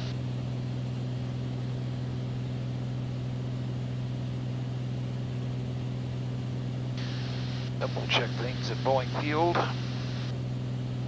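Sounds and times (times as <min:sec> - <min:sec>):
aircraft piston engine droning: 0:07.0 - 0:11.0.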